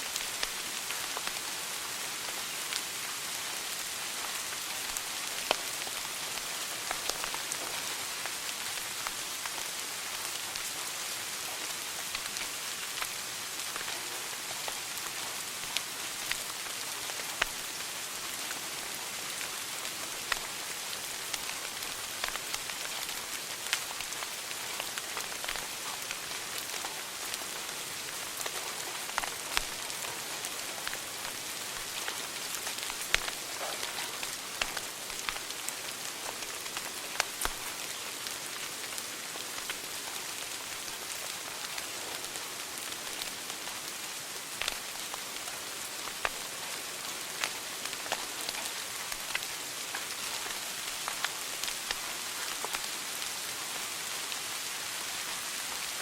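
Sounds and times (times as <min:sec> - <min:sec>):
wood fire crackling: 0:00.1 - 0:01.5, 0:11.8 - 0:53.3.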